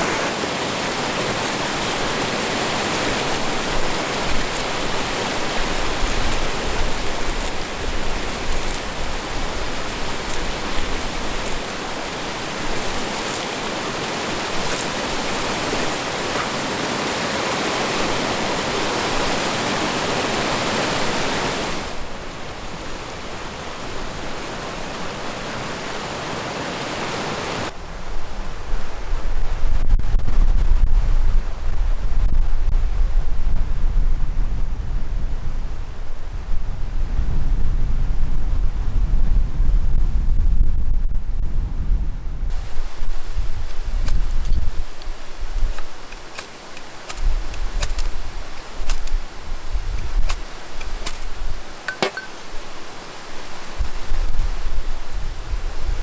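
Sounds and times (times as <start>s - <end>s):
wind buffeting microphone: 0.0s - 17.2s, 27.7s - 56.0s
river water rushing: 0.0s - 27.7s, 42.5s - 55.6s
faint ticks: 0.5s - 9.0s.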